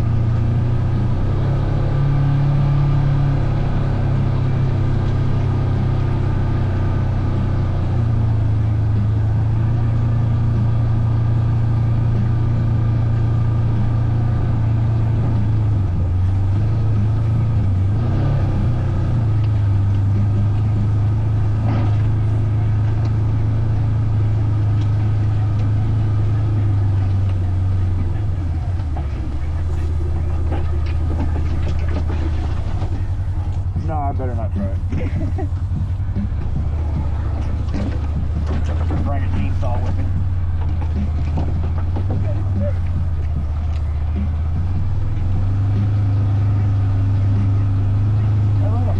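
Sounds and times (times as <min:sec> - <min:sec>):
vehicle engine low drone: 0:00.0 - 0:48.9.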